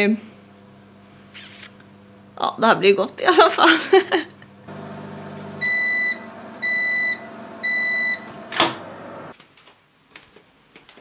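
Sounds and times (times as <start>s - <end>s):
microwave oven humming: 0.0s - 9.3s
microwave beeps: 4.7s - 9.3s.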